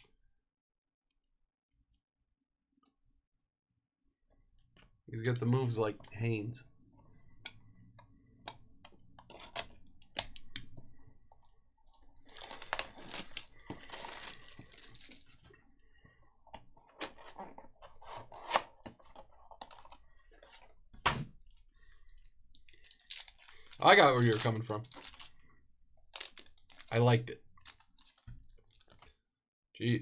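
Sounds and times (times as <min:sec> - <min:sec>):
pack wrapper tearing: 0:09.3 - 0:10.4, 0:12.2 - 0:15.4, 0:22.6 - 0:25.4, 0:26.1 - 0:27.0, 0:27.6 - 0:29.1.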